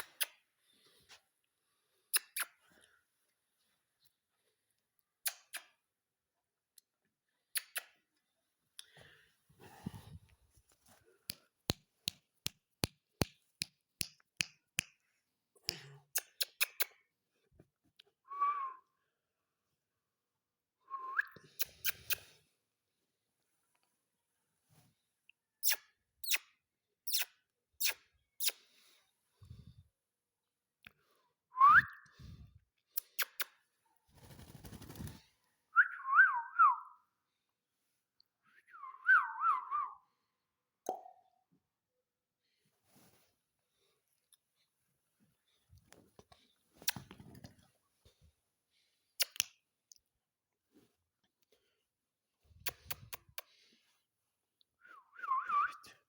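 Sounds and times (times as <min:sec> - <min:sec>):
soft rustle: 0:42.7 - 0:44.0.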